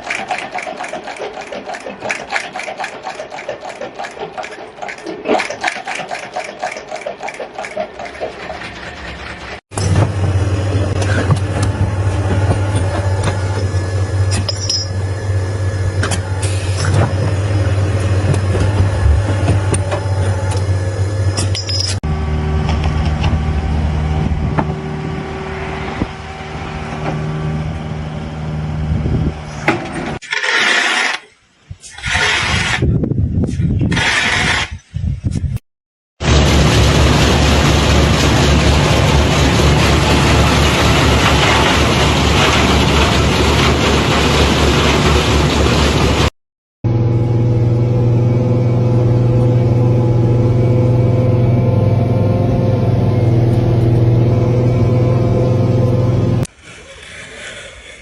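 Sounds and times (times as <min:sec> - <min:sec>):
small machine clattering: 0:00.0 - 0:09.6
machine hum: 0:06.6 - 0:30.2, 0:36.2 - 0:46.3, 0:46.9 - 0:56.8
motor running steadily: 0:09.8 - 0:29.7.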